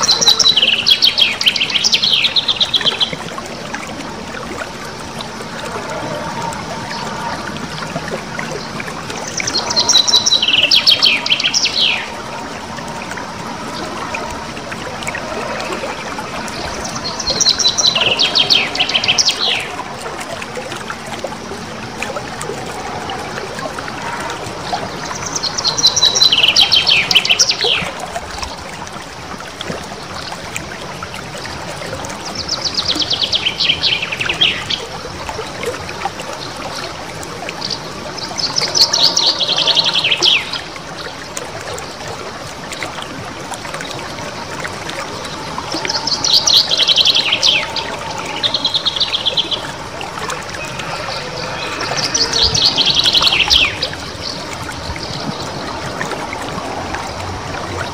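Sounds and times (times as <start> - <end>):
trickling water: 0.0 - 57.9
songbird trilling: 50.5 - 54.0.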